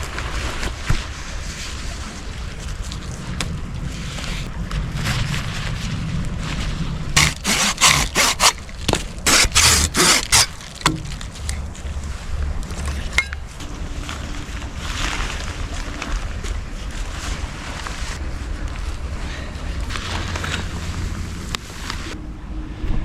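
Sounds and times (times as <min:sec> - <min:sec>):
wind rumble on microphone: 0:00.0 - 0:07.2, 0:11.0 - 0:23.0
short rustling scrapes: 0:05.2 - 0:11.6.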